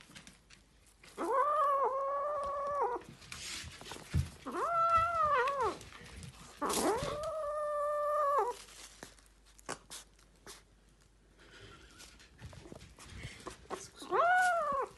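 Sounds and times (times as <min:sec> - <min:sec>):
kitten meowing: 0:04.5 - 0:05.8, 0:14.0 - 0:14.9.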